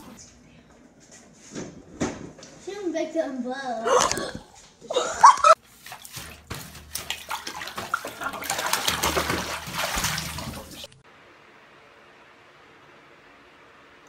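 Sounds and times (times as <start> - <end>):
bathwater splashing and sloshing: 5.2 - 11.0.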